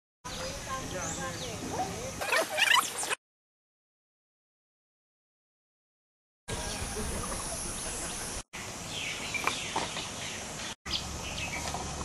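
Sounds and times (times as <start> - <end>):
birds chirping and calling: 0.3 - 3.2, 6.5 - 11.9.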